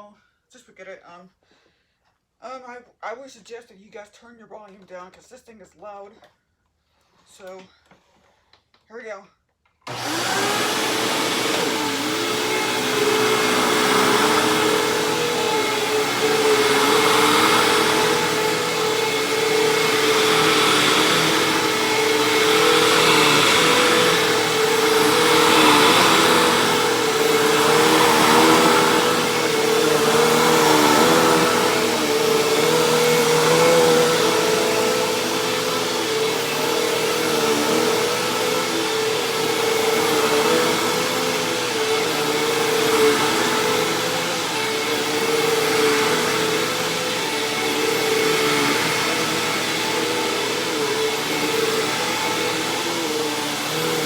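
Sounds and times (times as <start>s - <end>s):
upright vacuum cleaner running: 9.9s - 54.0s.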